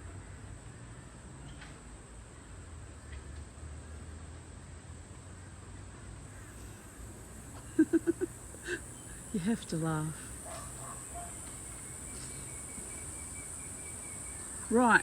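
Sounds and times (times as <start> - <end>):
high-pitched insect drone: 6.4 - 15.0.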